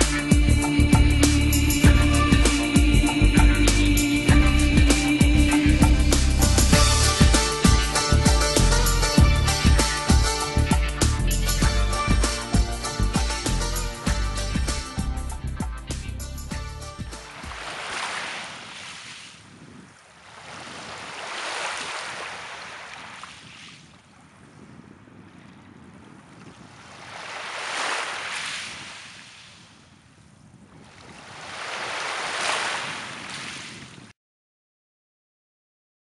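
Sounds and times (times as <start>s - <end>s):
waves washing onto shore: 17.2s - 30.1s, 30.7s - 34.1s.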